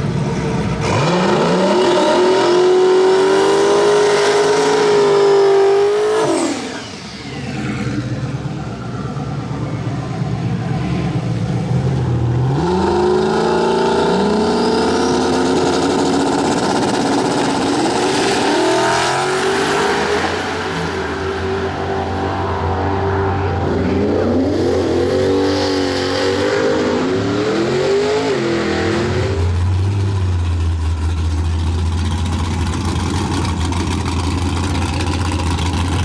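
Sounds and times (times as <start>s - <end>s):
engine revving through gear changes: 0.0s - 8.2s, 12.0s - 21.5s
race car engine at full throttle: 0.0s - 36.0s.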